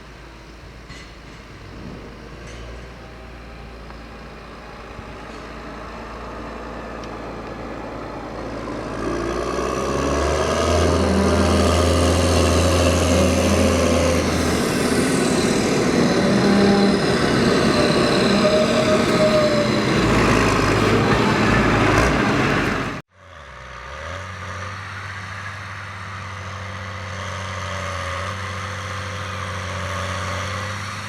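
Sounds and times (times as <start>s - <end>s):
tractor engine running: 0.0s - 23.0s
high whining tones: 9.8s - 22.0s.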